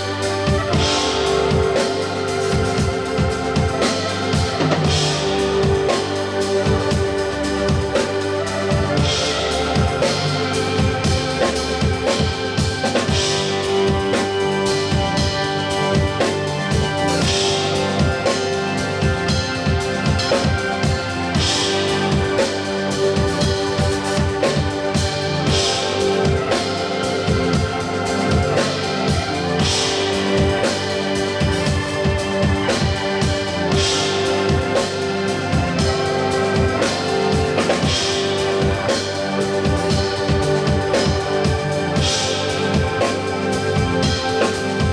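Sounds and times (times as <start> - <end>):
drum kit: 0.0 - 44.9
organ keyboard chords: 0.0 - 44.9.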